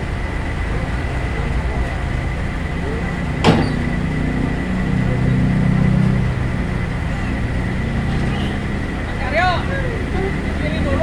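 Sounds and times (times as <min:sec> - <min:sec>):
heavy machinery engine humming: 0:00.0 - 0:11.0
sharp knock: 0:03.4 - 0:03.9.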